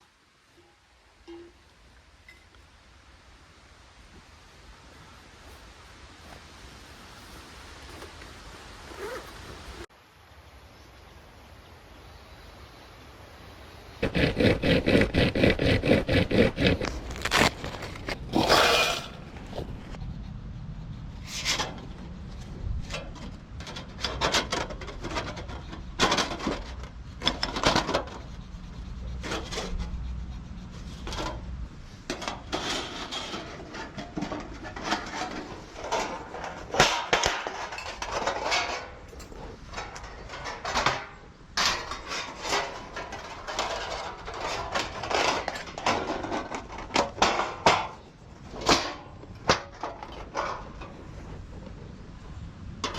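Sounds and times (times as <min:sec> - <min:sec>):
metal plates scraping and clicking: 0:14.0 - 0:20.0, 0:22.9 - 0:28.3, 0:30.8 - 0:51.4
rasp of clicks: 0:14.0 - 0:20.0.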